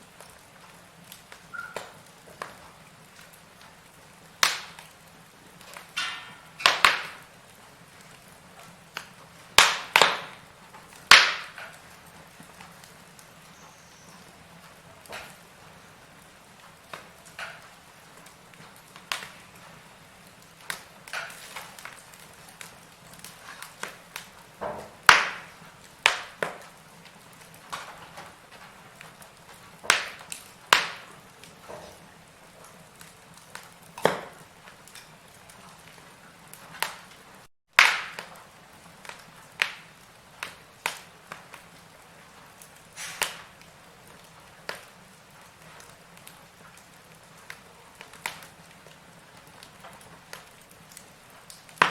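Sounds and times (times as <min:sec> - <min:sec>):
faint steady hiss: 0:00.0 - 0:37.5
firewood crackling: 0:00.0 - 0:51.9.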